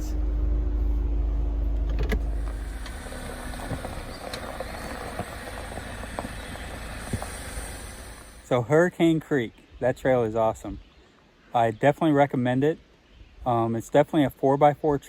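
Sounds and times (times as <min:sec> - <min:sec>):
car engine idling: 0:00.0 - 0:08.5
faint outdoor hiss: 0:00.0 - 0:15.0.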